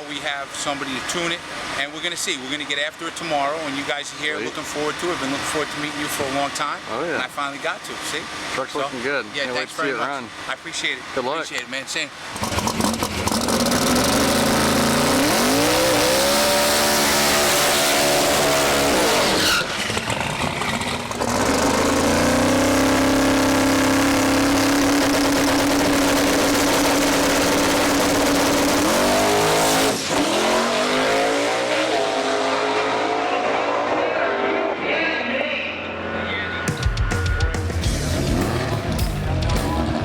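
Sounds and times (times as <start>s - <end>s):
pickup engine revving: 12.1s - 34.9s, 37.6s - 40.0s
tyre squeal: 18.9s - 20.0s.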